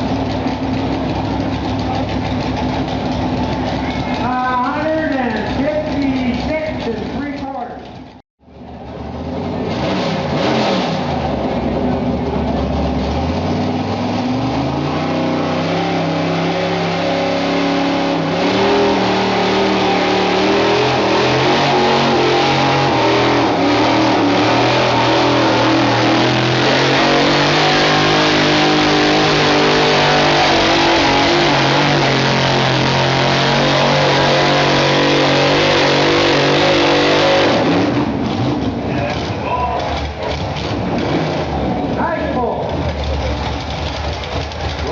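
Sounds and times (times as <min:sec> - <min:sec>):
truck engine revving under load: 0:08.9 - 0:42.0.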